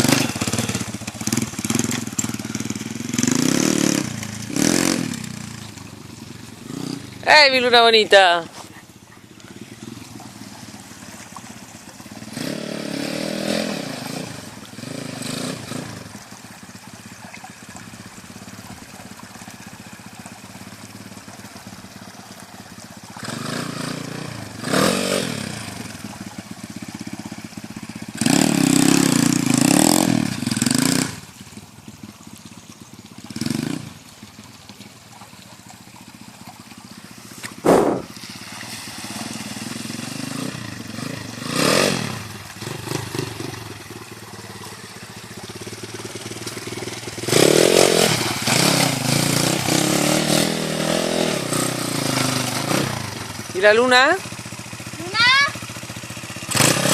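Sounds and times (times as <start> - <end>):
pit bike engine revving: 0.0 - 16.7, 22.7 - 31.5, 33.2 - 34.1, 37.2 - 38.1, 39.0 - 56.9.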